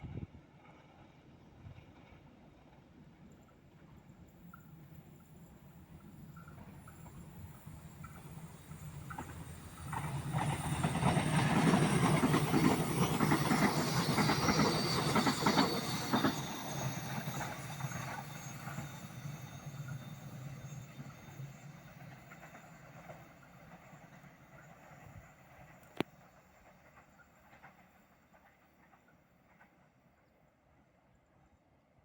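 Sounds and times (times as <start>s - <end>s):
train wheels clattering on bridge: 6.0s - 20.5s.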